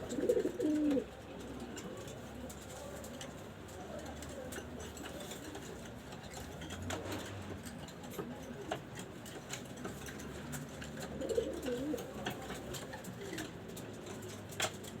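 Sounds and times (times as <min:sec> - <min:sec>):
pigeons cooing: 0:00.0 - 0:02.1, 0:10.8 - 0:13.5.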